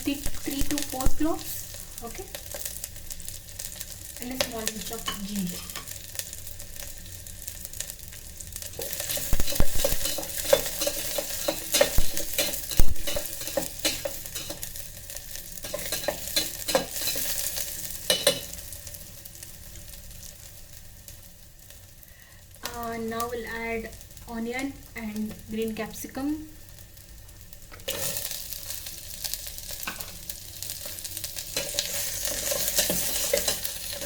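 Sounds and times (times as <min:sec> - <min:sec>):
food sizzling in oil: 0:00.0 - 0:34.0
utensil stirring and clicking: 0:08.8 - 0:14.6.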